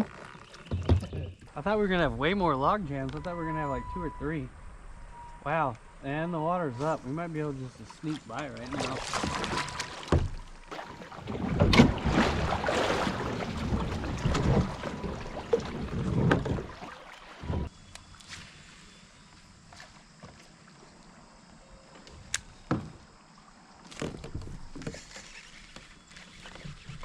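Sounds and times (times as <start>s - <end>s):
paddle splashing: 6.8s - 17.7s
kayak hull knocks: 8.8s - 17.7s.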